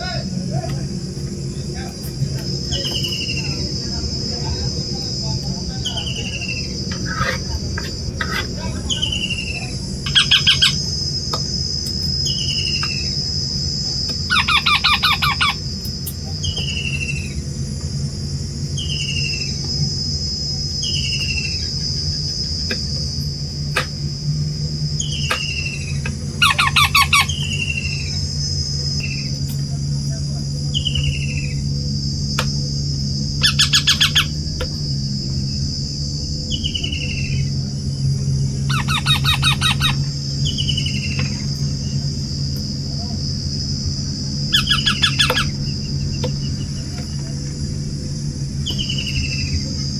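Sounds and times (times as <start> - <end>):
high-pitched buzz: 0.0 - 49.9
low hum: 0.0 - 49.9
parrot squawking: 5.8 - 10.8, 14.3 - 15.6, 26.4 - 28.0, 33.4 - 34.4, 38.7 - 41.0, 44.5 - 45.6
parrot chirps: 5.8 - 10.9, 14.3 - 15.6, 25.0 - 28.2, 33.4 - 34.4, 38.6 - 41.4, 44.5 - 45.8.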